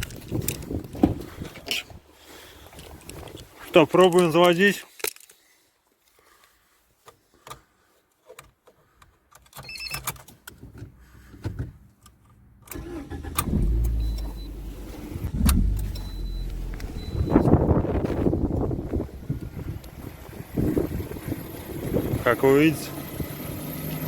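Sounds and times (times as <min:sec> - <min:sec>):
car engine starting and idling: 0:12.6 - 0:24.0
short electronic beep: 0:13.9 - 0:14.6, 0:15.2 - 0:17.6
clicks: 0:15.2 - 0:17.6.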